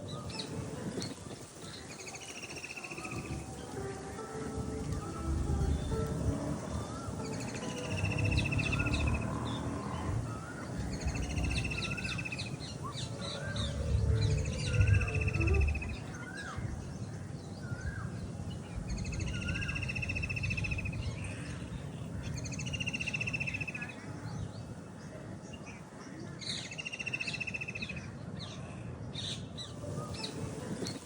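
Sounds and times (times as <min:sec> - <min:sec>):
birds chirping: 0:00.0 - 0:31.0
low rumble: 0:04.6 - 0:17.0
bird trilling: 0:06.9 - 0:16.6.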